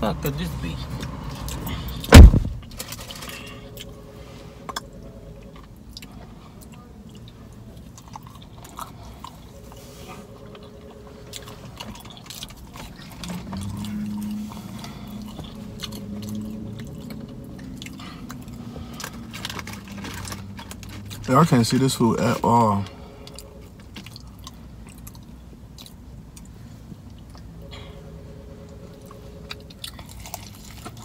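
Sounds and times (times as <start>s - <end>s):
low hum: 0.9s - 25.5s, 26.1s - 31.0s
person chewing chicken wings: 29.5s - 31.0s.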